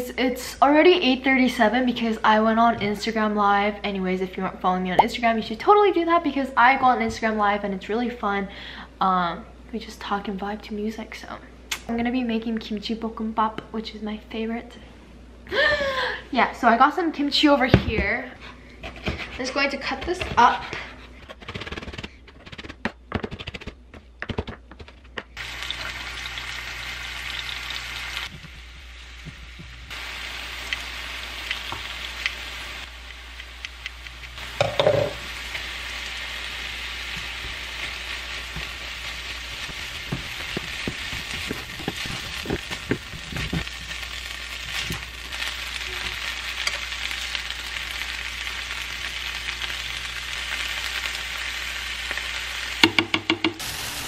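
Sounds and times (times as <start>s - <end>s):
spatula scraping a pan: 18.8s - 21.4s
food sizzling in a pan: 25.4s - 54.0s.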